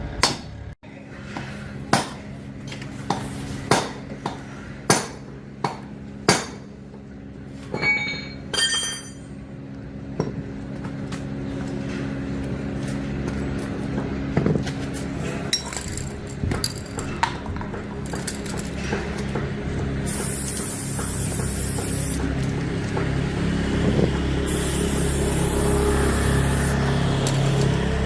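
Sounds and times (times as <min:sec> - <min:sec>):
steady low hum: 0:09.0 - 0:28.0
small metal parts clinking: 0:15.5 - 0:17.1
spraying hiss: 0:20.1 - 0:22.3, 0:24.4 - 0:27.7.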